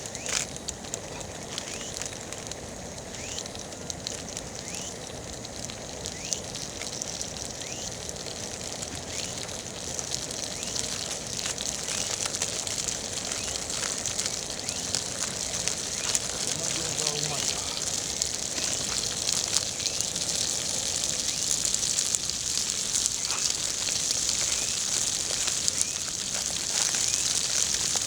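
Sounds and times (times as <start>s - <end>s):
campfire crackling and popping: 0.0s - 28.0s.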